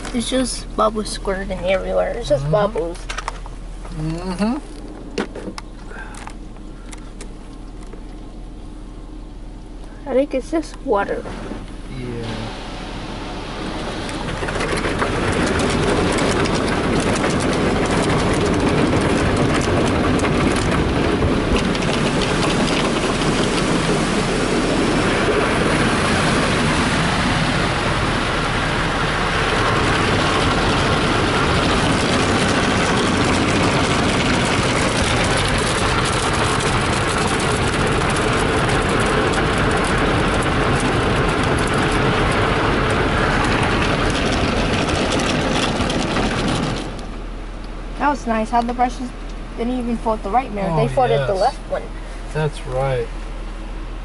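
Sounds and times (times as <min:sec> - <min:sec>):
water spraying on car: 0:00.0 - 0:05.2, 0:07.1 - 0:54.0
car wash brushes scrubbing: 0:10.1 - 0:47.2.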